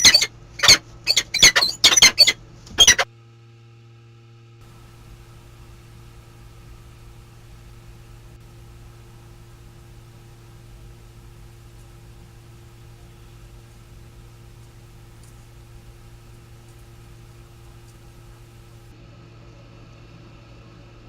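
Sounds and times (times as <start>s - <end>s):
falcon sharp squeaky calls: 0.0s - 3.1s
low electrical hum: 0.0s - 21.0s.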